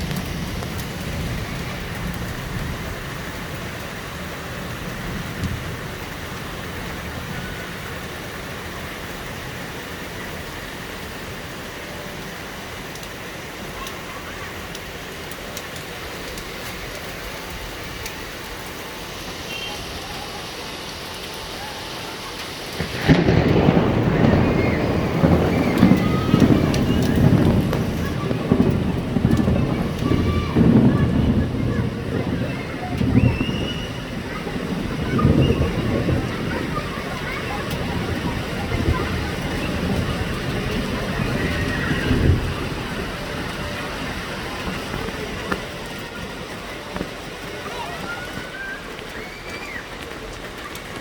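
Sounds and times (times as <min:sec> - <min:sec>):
thunder crack and rumble: 0:00.0 - 0:11.6, 0:22.5 - 0:51.0
rain falling: 0:00.0 - 0:51.0.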